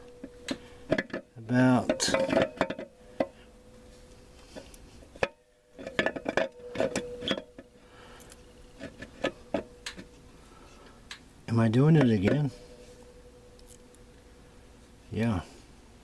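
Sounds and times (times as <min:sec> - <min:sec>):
faint steady hum: 0:00.0 - 0:16.0
metal parts clinking and knocking: 0:00.2 - 0:03.0, 0:04.6 - 0:10.2.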